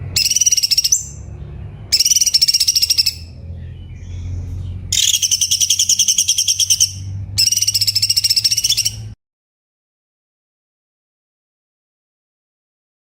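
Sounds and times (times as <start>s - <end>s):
bird singing rapid high notes: 0.1s - 9.2s.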